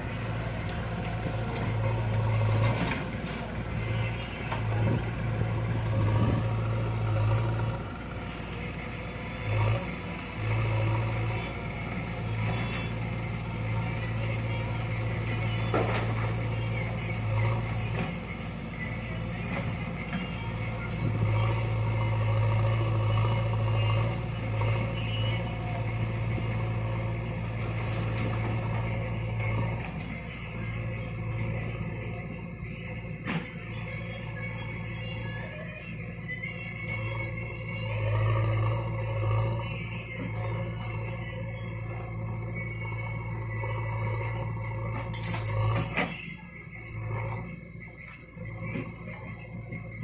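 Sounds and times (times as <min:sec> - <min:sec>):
backhoe diesel engine droning: 0:00.0 - 0:50.0.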